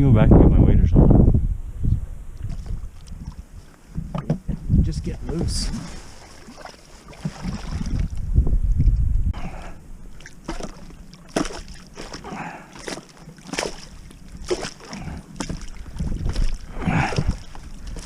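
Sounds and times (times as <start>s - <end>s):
shallow water splashing: 2.4s - 4.3s, 5.1s - 8.3s, 9.4s - 18.0s.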